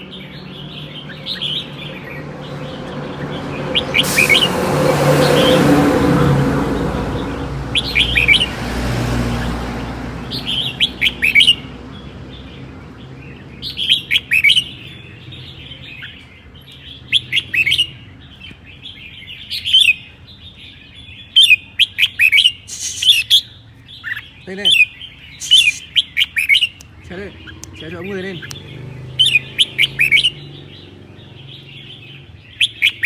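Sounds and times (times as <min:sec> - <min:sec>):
bird singing sharp notes: 0:03.8 - 0:05.9, 0:22.5 - 0:30.9.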